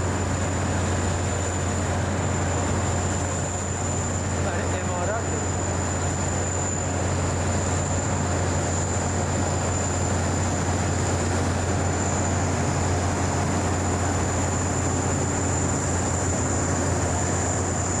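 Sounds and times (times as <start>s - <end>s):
aircraft engine noise: 0.0s - 18.0s.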